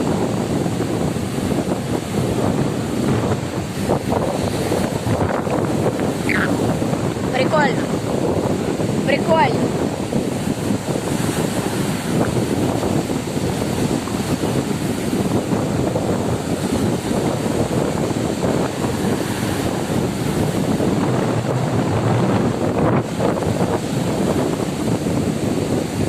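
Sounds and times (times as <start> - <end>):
heavy surf breaking: 0.0 - 26.0
wind buffeting microphone: 0.0 - 26.0.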